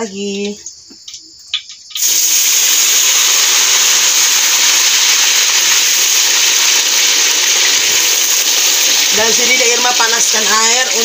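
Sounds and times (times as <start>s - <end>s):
oil sizzling in a pan: 1.8s - 11.0s.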